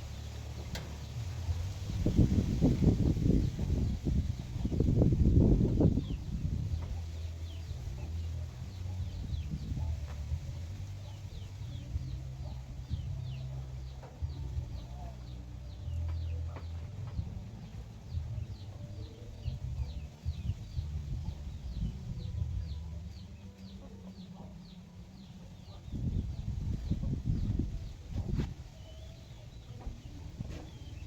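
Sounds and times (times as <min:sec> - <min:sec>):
chicks peeping: 0:00.0 - 0:31.0
low rumble: 0:11.5 - 0:24.1.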